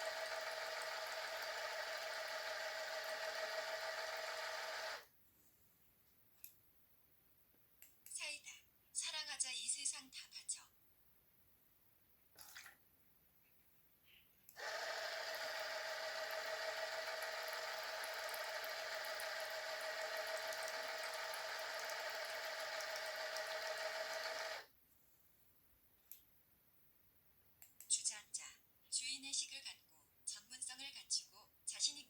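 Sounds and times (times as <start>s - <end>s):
small electric motor whining: 0.0s - 5.0s, 14.6s - 24.7s.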